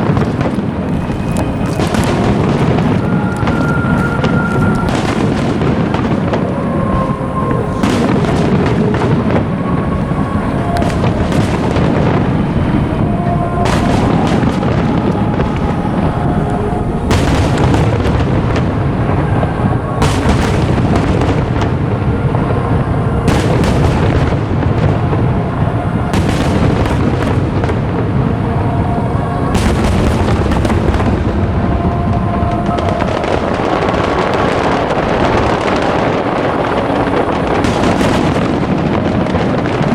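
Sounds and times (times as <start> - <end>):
firework shells bursting: 0.0 - 12.8.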